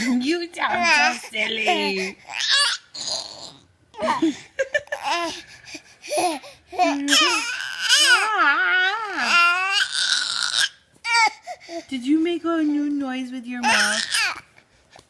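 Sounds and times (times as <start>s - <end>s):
baby squealing and cooing: 0.7s - 4.1s, 6.1s - 11.8s, 13.6s - 14.5s.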